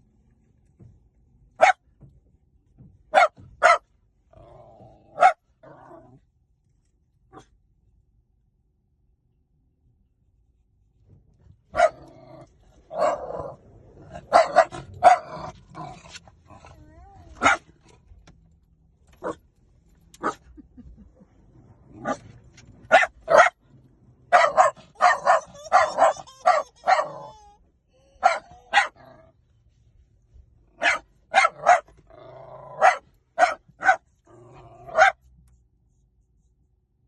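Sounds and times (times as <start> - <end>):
dog barking: 1.6 - 1.8, 3.1 - 3.9, 5.1 - 5.4, 11.7 - 12.1, 12.9 - 15.6, 17.3 - 17.7, 19.2 - 19.4, 20.2 - 20.6, 22.0 - 22.3, 22.9 - 23.6, 24.3 - 27.5, 28.1 - 29.2, 30.8 - 32.0, 32.7 - 34.2, 34.9 - 35.2.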